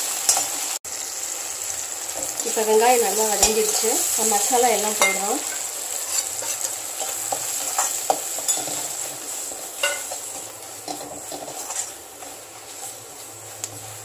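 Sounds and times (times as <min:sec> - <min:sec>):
onion and tomato sizzling in oil: 0:00.0 - 0:14.0
spatula stirring and scraping: 0:05.0 - 0:14.0.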